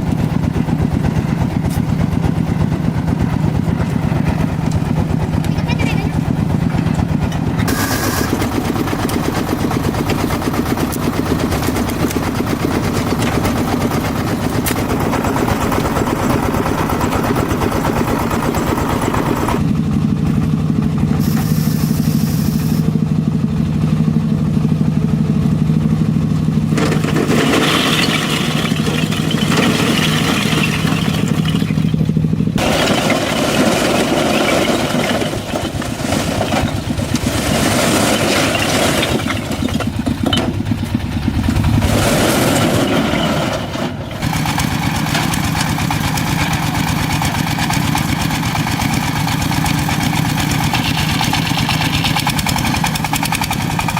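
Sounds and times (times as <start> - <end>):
engine running: 0.0 - 53.9.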